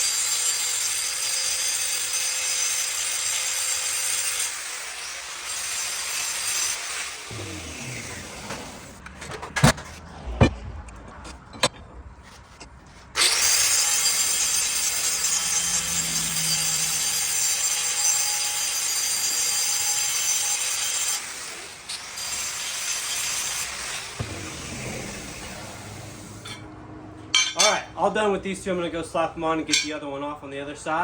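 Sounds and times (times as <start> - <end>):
power tool whining and grinding: 0.0 - 9.0, 13.1 - 26.6.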